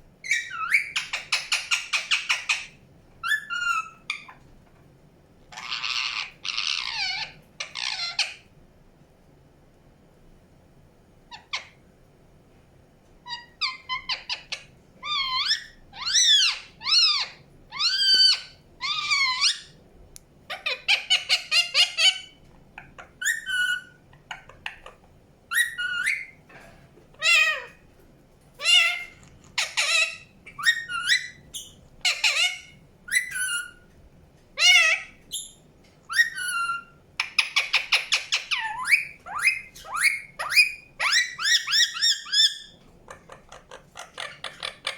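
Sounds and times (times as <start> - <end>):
parakeet chirping and squawking: 0.2 - 4.4, 5.5 - 8.4, 13.3 - 19.8, 20.5 - 26.4, 27.2 - 27.8, 28.6 - 33.9, 34.6 - 44.9
parakeet chattering: 5.5 - 8.4, 28.6 - 33.8, 34.6 - 44.9.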